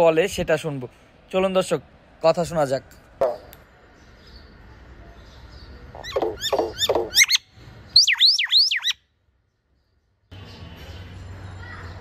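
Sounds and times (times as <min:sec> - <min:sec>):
myna chattering calls: 0:06.0 - 0:07.4
loud whistled bird notes: 0:06.5 - 0:09.0.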